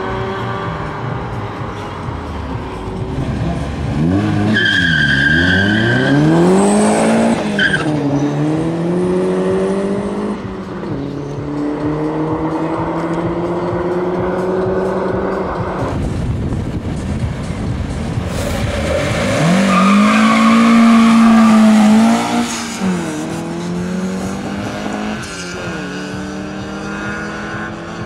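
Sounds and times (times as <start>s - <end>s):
car engine accelerating hard: 0.0s - 28.0s
tyres squealing: 4.4s - 6.3s, 19.6s - 22.2s.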